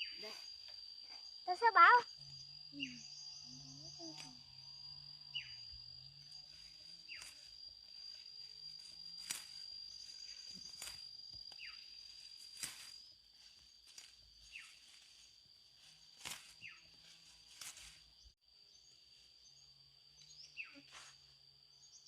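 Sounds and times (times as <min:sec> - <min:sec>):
falling chirps: 0:00.0 - 0:13.1
insect high-pitched tone: 0:00.0 - 0:22.0.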